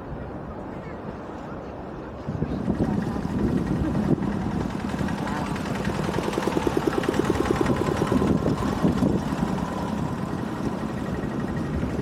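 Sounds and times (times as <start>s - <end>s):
small engine running: 2.7s - 12.0s.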